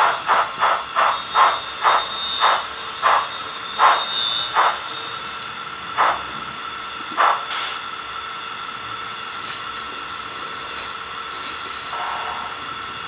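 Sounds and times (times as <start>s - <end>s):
model train hissing clatter: 0.0s - 4.9s, 9.0s - 12.5s.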